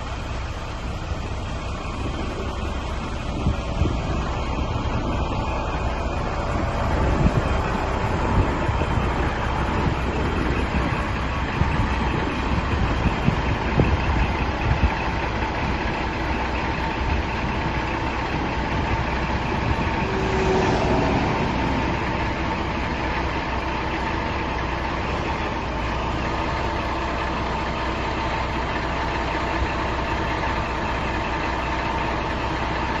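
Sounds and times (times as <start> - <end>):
diesel truck engine idling: 0.0 - 33.0
thin steady whine: 16.4 - 25.2.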